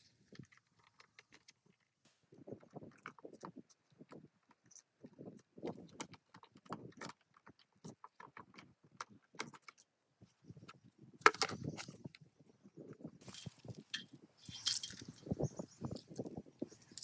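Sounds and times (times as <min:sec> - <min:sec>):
metal clatter: 0:13.2 - 0:17.0
metal parts and tools clinking: 0:13.2 - 0:17.0.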